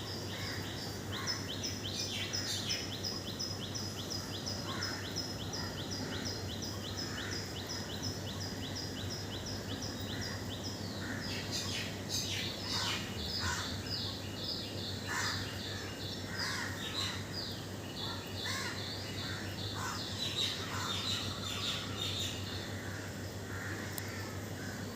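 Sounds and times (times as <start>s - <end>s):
steady low background hum: 0.0s - 24.9s
harsh caw-like bird calls: 0.3s - 1.5s, 4.6s - 7.9s, 10.1s - 11.8s, 12.6s - 13.9s, 15.0s - 17.3s, 18.0s - 24.9s.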